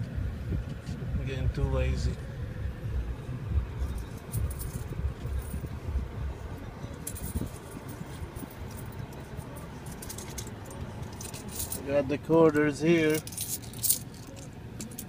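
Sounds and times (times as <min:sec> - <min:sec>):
low uneven rumble: 0:00.0 - 0:15.0
coins jingling in hand: 0:03.8 - 0:05.8, 0:06.8 - 0:11.8, 0:13.0 - 0:15.0.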